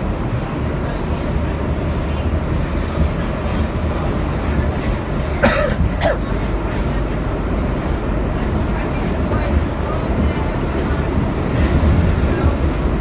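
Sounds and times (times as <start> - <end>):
subway wheels rumbling on rail: 0.0 - 13.0.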